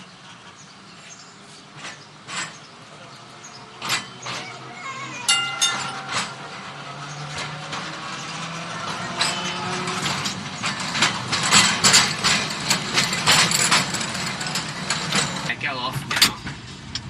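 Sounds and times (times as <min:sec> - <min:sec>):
tram motor hum: 0:02.0 - 0:15.6.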